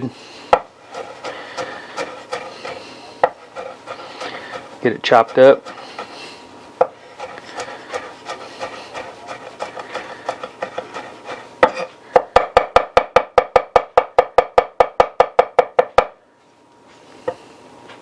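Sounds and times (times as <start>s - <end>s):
knife scraping board: 0.2s - 12.5s
knife chopping on cutting board: 0.5s - 6.2s, 6.8s - 16.1s.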